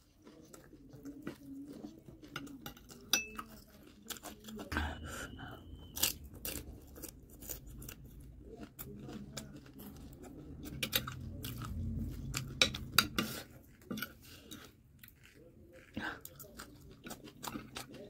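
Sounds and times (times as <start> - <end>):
close chewing: 0.0 - 18.0
metal spoon clinking on plate: 2.6 - 3.5.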